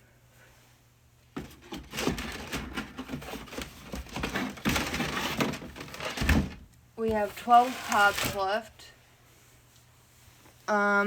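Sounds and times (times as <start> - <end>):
cans and cardboard being handled: 1.3 - 8.6.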